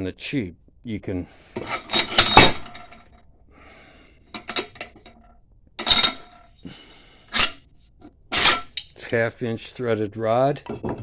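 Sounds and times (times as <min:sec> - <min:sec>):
metal parts clinking: 0:01.4 - 0:03.0, 0:04.3 - 0:05.2, 0:05.8 - 0:06.6, 0:07.3 - 0:07.6, 0:08.3 - 0:09.0.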